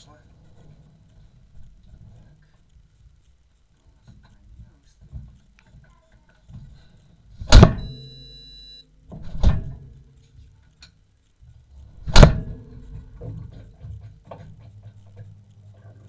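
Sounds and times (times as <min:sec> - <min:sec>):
steady high tone: 0:07.8 - 0:09.0.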